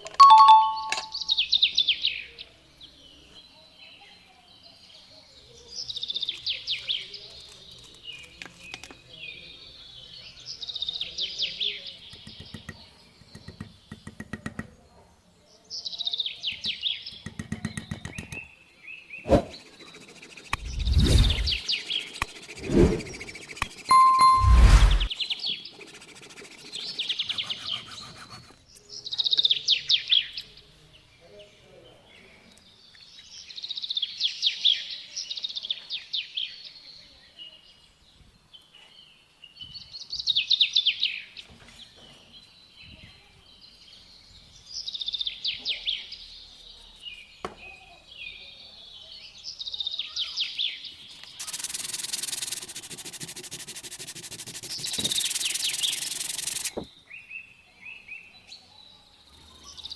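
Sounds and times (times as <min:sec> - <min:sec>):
rasping rubbing sound: 0:19.3 - 0:28.6, 0:51.4 - 0:56.9
songbird trilling: 0:51.2 - 0:56.8.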